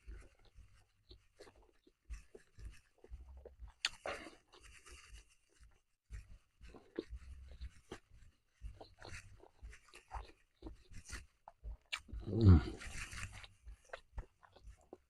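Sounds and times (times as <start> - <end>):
wet mouth clicks: 3.2 - 4.4, 11.4 - 15.0
chewing crunchy burger: 8.8 - 15.0.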